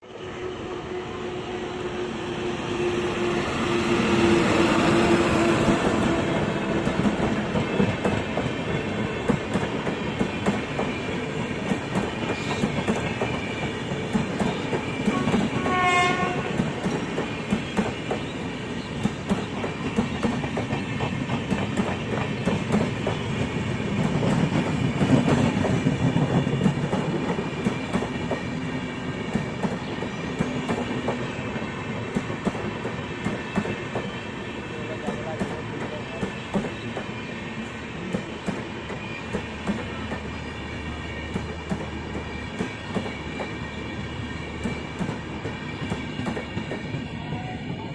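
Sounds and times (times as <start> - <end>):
train wheels clicking on rails: 2.5 - 34.3, 34.9 - 40.4, 41.2 - 43.6, 44.4 - 47.2
train horn blast: 15.1 - 16.8.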